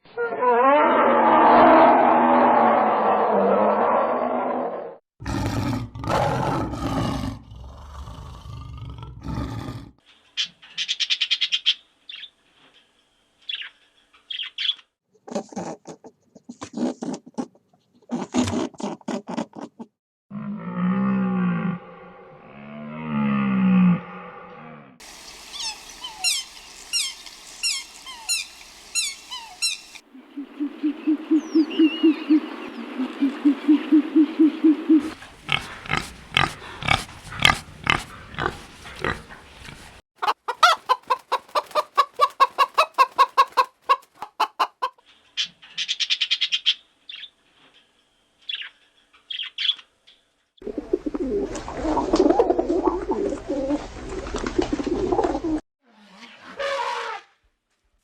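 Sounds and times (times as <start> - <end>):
low pulsing animal call: 0.1 - 9.9, 25.6 - 38.6
fast high falling chirps: 25.1 - 30.0
clicking and clucking calls: 25.2 - 30.0, 32.9 - 45.0
high animal calls: 25.2 - 39.9
rough low animal calls: 25.5 - 40.0.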